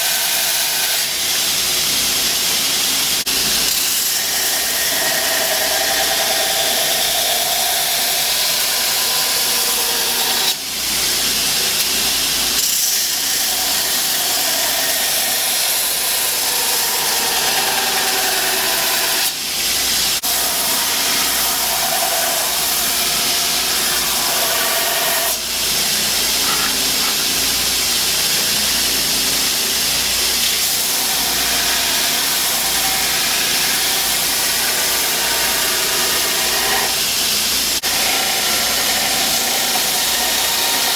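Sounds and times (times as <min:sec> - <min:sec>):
forge hissing: 0:10.5 - 0:40.9.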